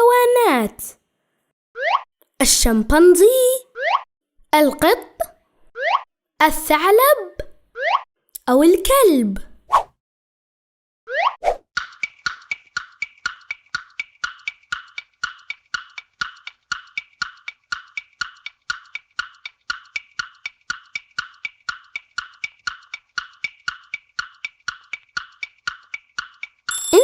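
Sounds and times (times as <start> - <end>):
wood-block tick-tock timer: 11.8 - 27.0.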